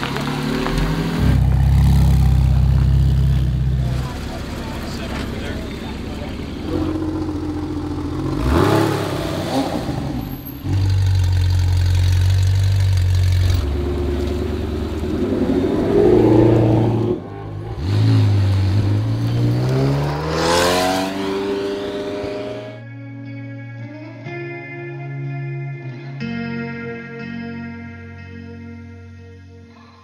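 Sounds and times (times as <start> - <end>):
engine revving up: 0.0 - 12.3, 13.0 - 22.8
sports car engines pulling away: 0.0 - 22.8.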